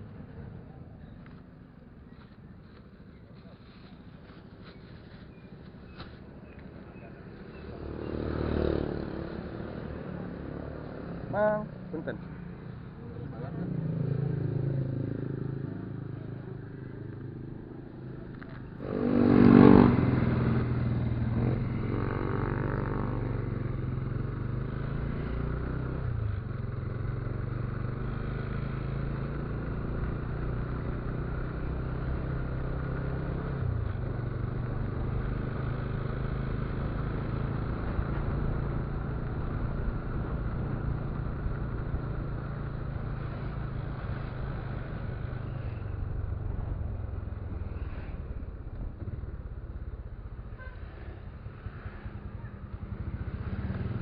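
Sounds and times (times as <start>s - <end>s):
motorcycle engine running: 14.2s - 54.0s.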